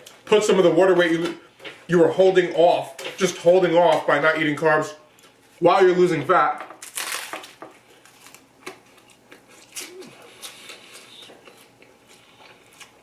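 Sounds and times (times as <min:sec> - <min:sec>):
chewing crunches: 0:06.8 - 0:13.0.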